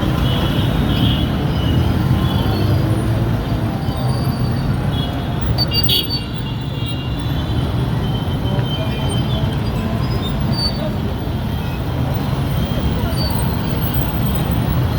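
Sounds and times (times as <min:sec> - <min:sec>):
motorcycle engines rumbling: 0:00.0 - 0:06.8, 0:07.4 - 0:14.9
street traffic: 0:00.0 - 0:14.9.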